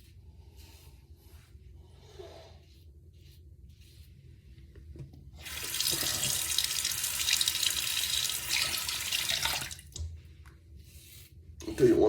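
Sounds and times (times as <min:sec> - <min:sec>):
tap water running into sink: 0:05.4 - 0:10.0.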